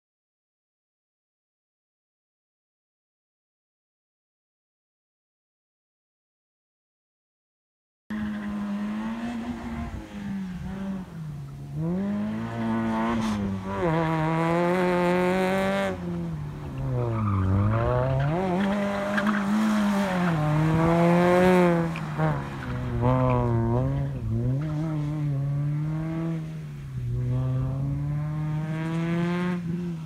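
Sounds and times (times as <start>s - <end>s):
car engine revving: 8.1s - 30.0s.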